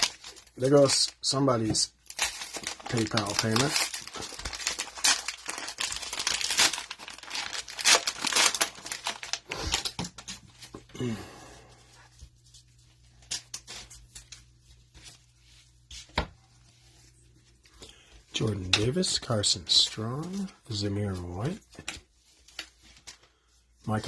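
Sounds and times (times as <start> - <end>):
cellophane wrapper tearing: 0.0 - 10.3.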